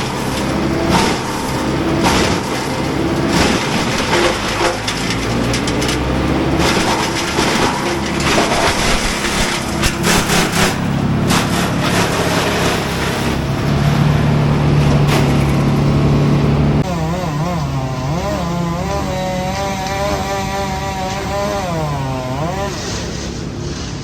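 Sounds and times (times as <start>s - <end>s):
wood cracking and crunching: 0.0s - 16.9s
diesel engine running: 0.0s - 24.0s.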